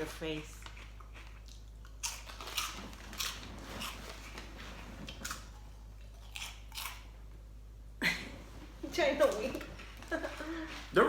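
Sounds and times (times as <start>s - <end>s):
person chewing crunchy snack: 0.8s - 4.4s, 5.1s - 7.2s.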